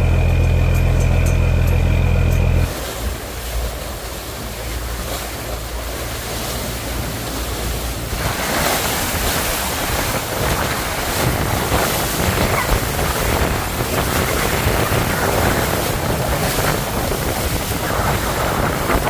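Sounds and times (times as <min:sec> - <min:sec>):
low rumble: 0:00.0 - 0:08.4
choppy river water rushing: 0:02.6 - 0:19.0
wind buffeting microphone: 0:06.9 - 0:19.0.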